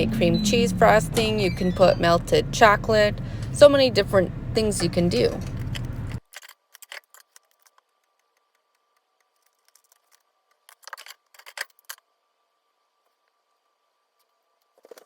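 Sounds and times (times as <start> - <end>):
faint steady hum: 0.0 - 6.2
handling clicks and rustles: 4.6 - 12.0.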